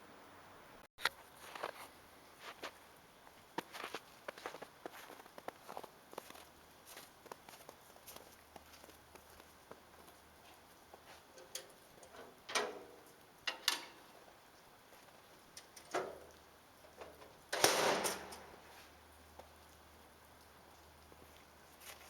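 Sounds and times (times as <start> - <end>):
footsteps and scuffs: 1.2 - 11.4, 21.1 - 22.0.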